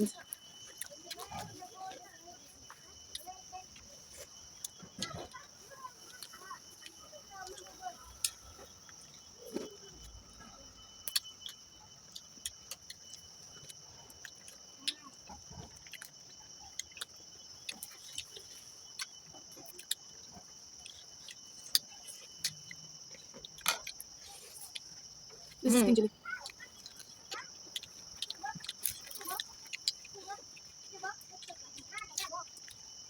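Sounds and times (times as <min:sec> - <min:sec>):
person chewing food: 0:00.0 - 0:01.6, 0:02.7 - 0:05.4, 0:11.0 - 0:32.8
insect chirring: 0:00.0 - 0:33.0.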